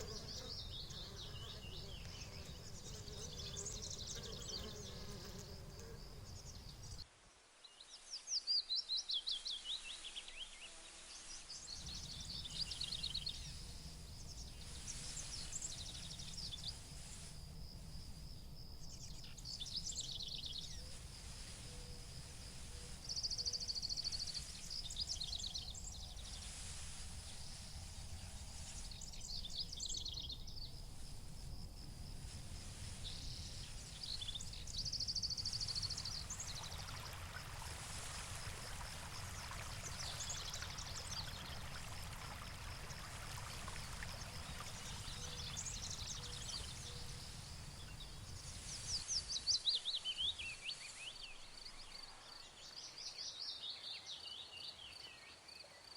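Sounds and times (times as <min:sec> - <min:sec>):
songbirds singing: 0:00.0 - 0:55.9
high insect trill: 0:11.8 - 0:51.9.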